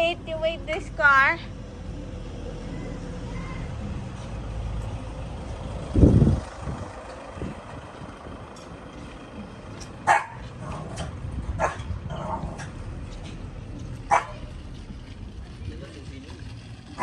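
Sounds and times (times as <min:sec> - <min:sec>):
low rumble: 0:00.9 - 0:16.9
dog barking: 0:10.0 - 0:10.4, 0:11.6 - 0:11.8, 0:14.1 - 0:14.5.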